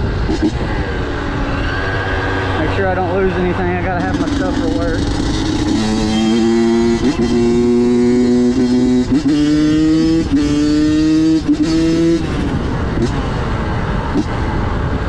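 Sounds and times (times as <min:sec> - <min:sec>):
two-stroke motorcycle engine running: 0:03.9 - 0:12.3.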